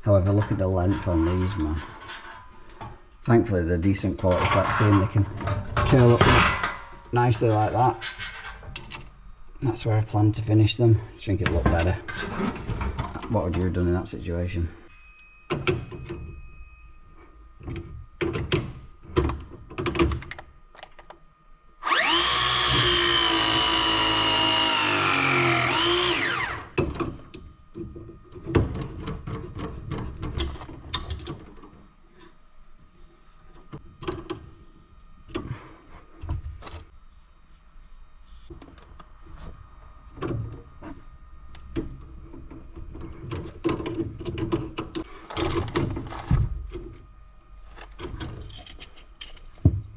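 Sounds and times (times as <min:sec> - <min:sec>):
power tool motor whining: 0:21.8 - 0:26.8
tools being handled clicking: 0:48.2 - 0:49.9.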